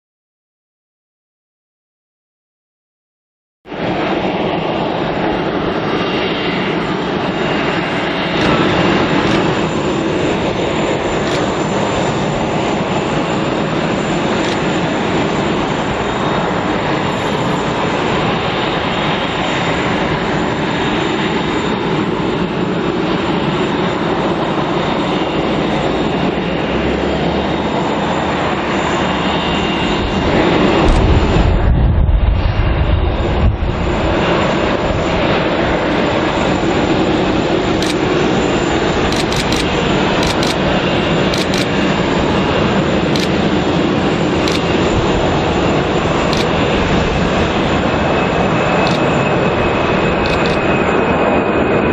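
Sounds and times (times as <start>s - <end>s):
jet engines roaring: 3.7s - 51.9s
deep rumble: 30.0s - 35.3s.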